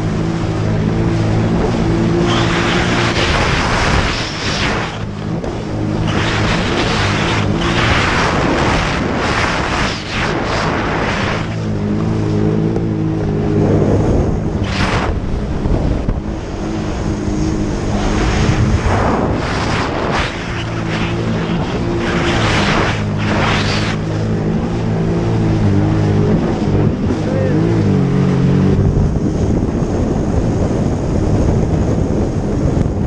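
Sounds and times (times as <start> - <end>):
jet ski engine humming: 0.0 - 33.0
rushing noise bursts: 2.1 - 11.8, 14.6 - 16.1, 17.7 - 24.2.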